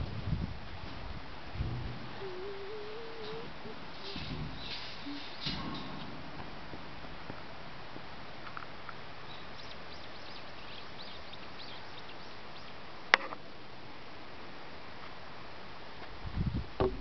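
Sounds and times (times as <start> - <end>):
small birds chirping: 2.1 - 6.2, 9.2 - 13.0.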